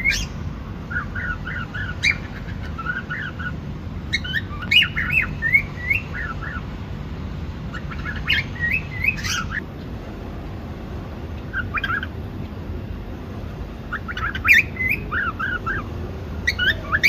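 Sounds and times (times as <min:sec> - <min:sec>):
cockatiel chirping: 0:00.0 - 0:06.6, 0:07.7 - 0:09.6, 0:11.5 - 0:12.2, 0:13.9 - 0:17.0
low background hum: 0:00.0 - 0:17.0.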